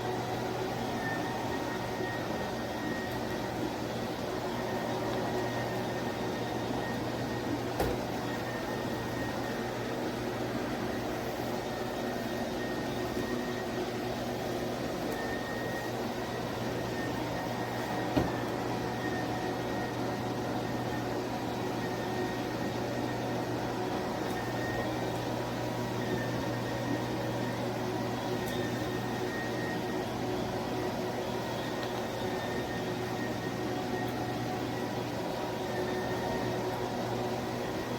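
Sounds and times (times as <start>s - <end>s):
electric spin mop motor hum: 0.0s - 37.9s.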